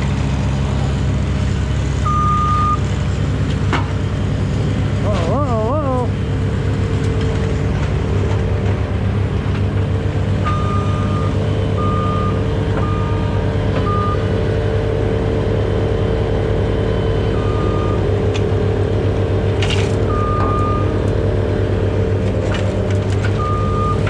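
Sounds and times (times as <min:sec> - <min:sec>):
truck engine running: 0:00.0 - 0:24.0
short electronic warning beeps: 0:02.1 - 0:02.8.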